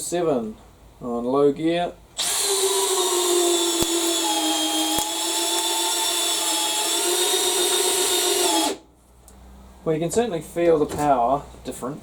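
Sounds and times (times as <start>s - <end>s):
drill motor whine: 2.2s - 8.8s.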